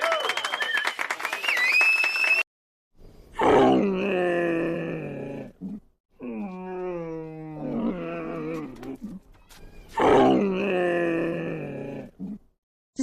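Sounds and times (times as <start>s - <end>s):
camel groaning and bellowing: 3.3s - 12.6s.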